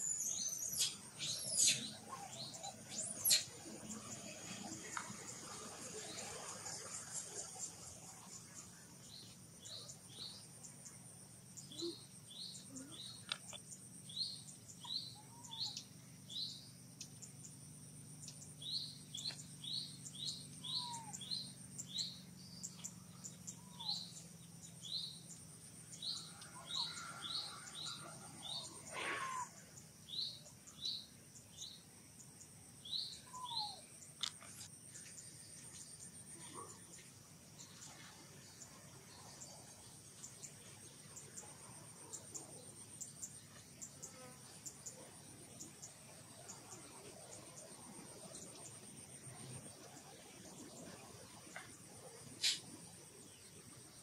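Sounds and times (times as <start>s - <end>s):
small bird chirping: 0.0s - 5.1s, 8.4s - 37.8s
insects buzzing: 0.0s - 54.0s
lower falling bird calls: 18.2s - 22.8s, 26.0s - 31.0s, 32.8s - 35.2s.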